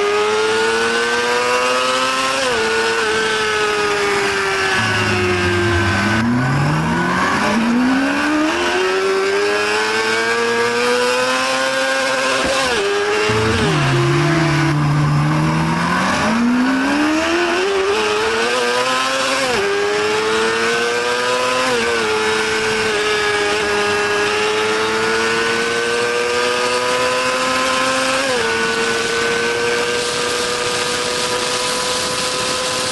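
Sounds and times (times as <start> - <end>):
motorcycle engine accelerating: 2.4 - 10.6, 13.1 - 19.1.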